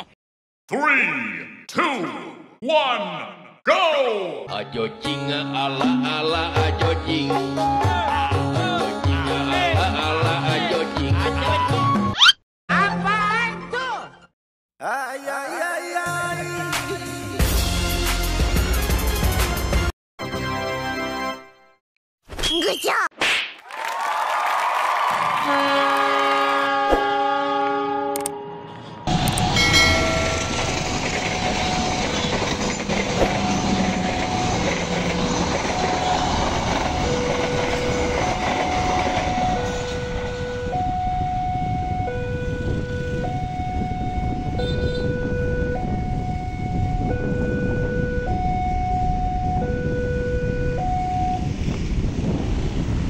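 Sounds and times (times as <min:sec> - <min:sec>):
passenger train rumbling past: 0:28.6 - 0:53.0
two-note crossing alarm: 0:35.8 - 0:51.6.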